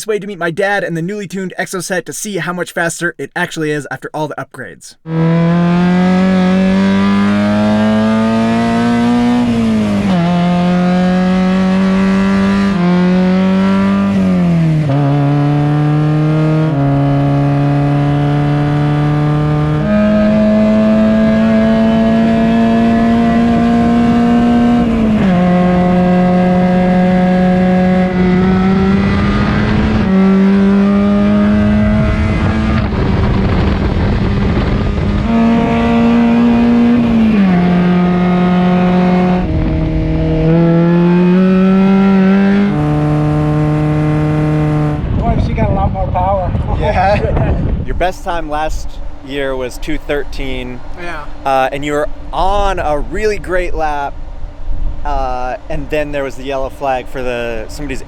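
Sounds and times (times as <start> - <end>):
race car engine revving through gears: 5.1 - 45.2.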